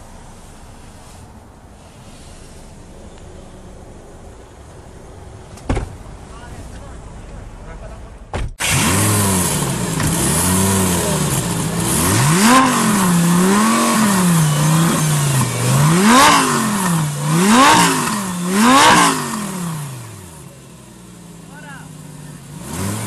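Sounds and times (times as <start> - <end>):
car engine revving: 7.6 - 23.0.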